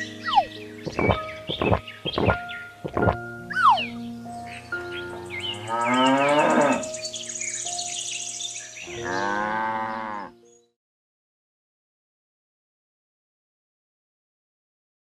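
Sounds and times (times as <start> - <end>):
cow mooing: 5.2 - 6.9, 8.9 - 10.4.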